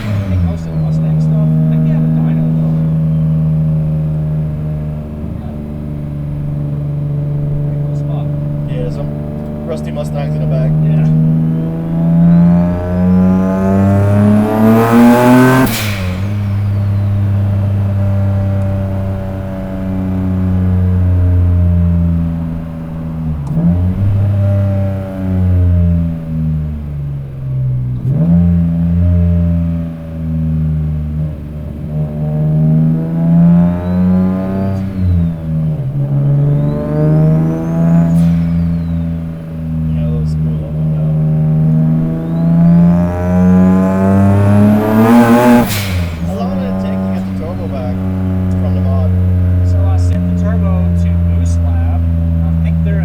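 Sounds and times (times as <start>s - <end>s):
car engine accelerating: 0.0s - 53.0s
turbo whistle: 15.7s - 17.9s, 36.2s - 39.5s.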